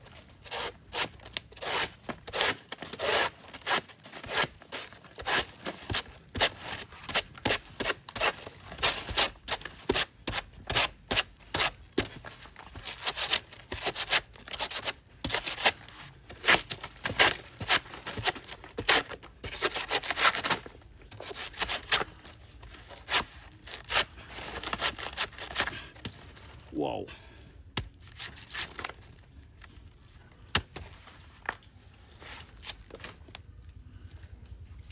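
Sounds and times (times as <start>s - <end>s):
blade chopping banana stem: 0.5s - 22.0s.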